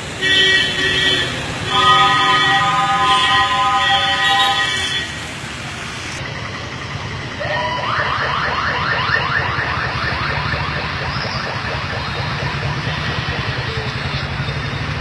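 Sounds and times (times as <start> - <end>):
vehicle engines and traffic rumble: 0.0 - 15.0
electronic siren rising sweeps: 7.3 - 14.9.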